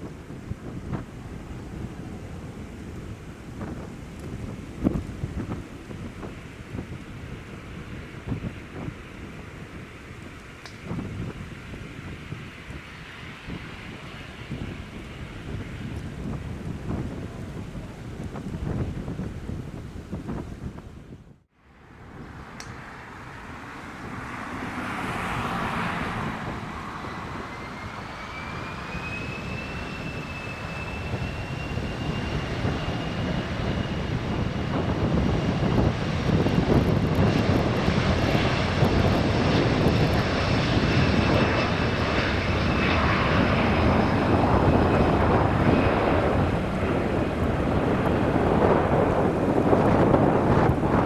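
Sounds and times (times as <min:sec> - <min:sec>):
jet engines spooling up: 0:22.4 - 0:51.0.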